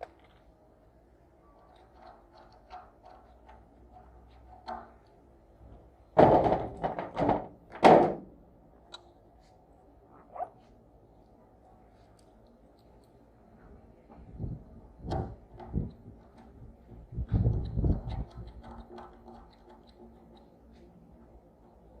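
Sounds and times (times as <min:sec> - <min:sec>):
loud thuds and knocks: 0:06.2 - 0:08.2.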